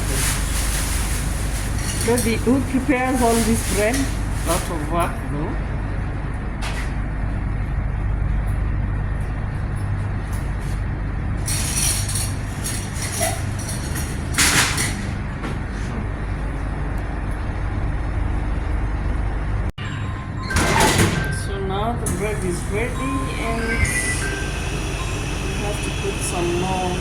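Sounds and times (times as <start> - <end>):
machinery and ventilation hum: 0.0 - 27.0.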